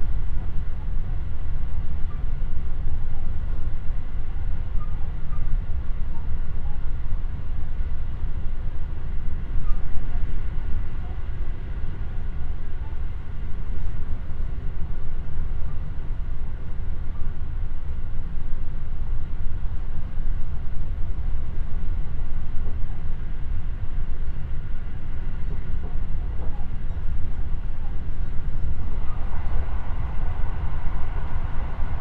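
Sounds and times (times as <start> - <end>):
faint steady whine: 0.0 - 32.0
wheels rumbling on rail: 0.0 - 32.0.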